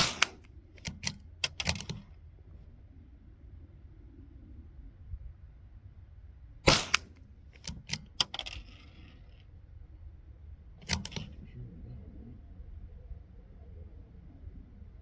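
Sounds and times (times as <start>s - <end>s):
rifle shots: 0.0s - 0.5s, 6.6s - 7.7s
light clicks: 10.8s - 11.5s.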